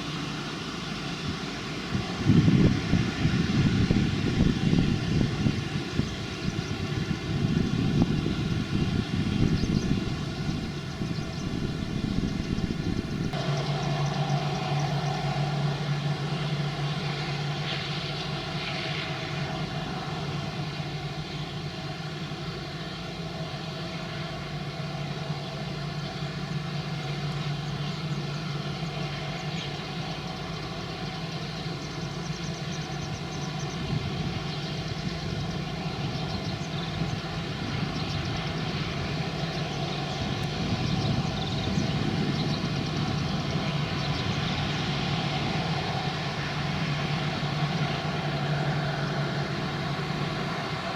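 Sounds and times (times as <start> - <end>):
jet engines humming and whining: 0.0 - 50.9.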